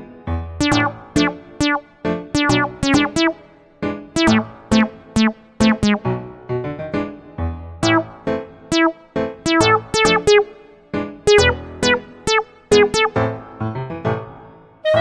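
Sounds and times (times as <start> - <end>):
bouncy synthesizer tune: 0.6 - 6.2, 7.8 - 13.3.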